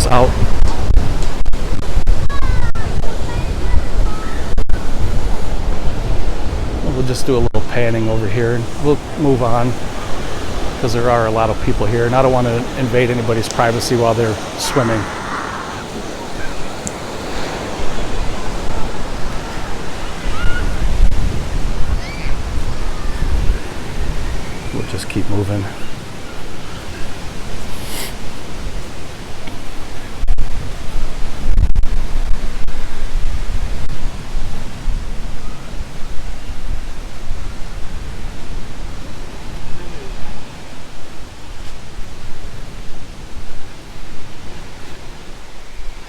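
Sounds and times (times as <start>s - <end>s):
wind buffeting microphone: 0.0s - 25.0s
surf washing onto shore: 0.0s - 46.0s.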